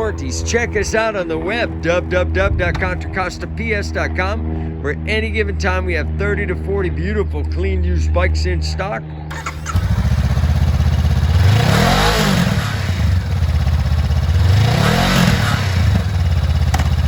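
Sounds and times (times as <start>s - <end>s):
motorcycle engine idling and revving: 9.3s - 17.0s.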